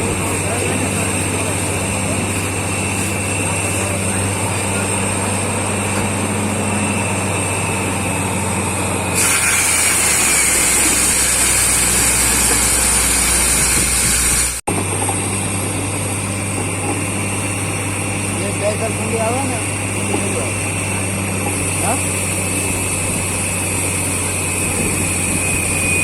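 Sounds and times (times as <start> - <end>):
drilling rig engine hum: 0.0 - 26.0
strong hiss: 9.2 - 14.6.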